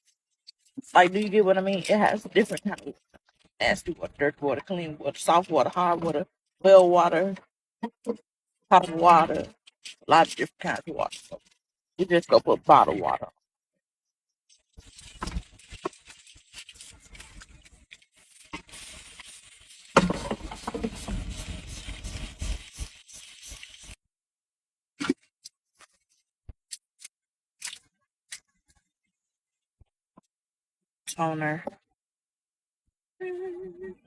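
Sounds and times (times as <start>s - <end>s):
face washing squishing: 14.8s - 24.0s.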